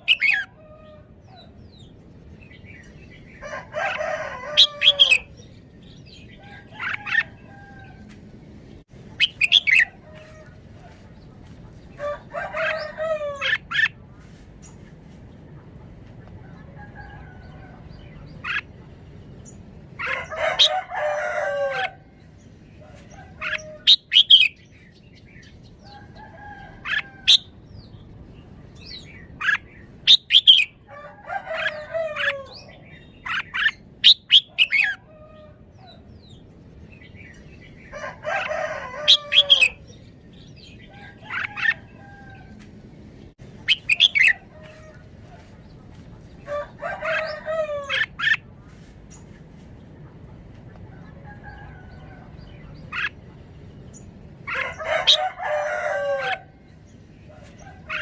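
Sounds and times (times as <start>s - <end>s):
rooster crowing: 3.4s - 5.3s, 12.0s - 13.7s, 20.0s - 22.0s, 30.8s - 32.7s, 37.9s - 39.8s, 46.4s - 48.2s, 54.5s - 56.6s
bird chirping: 8.7s - 10.1s, 22.2s - 26.2s, 26.8s - 30.8s, 31.7s - 35.0s, 43.3s - 44.8s.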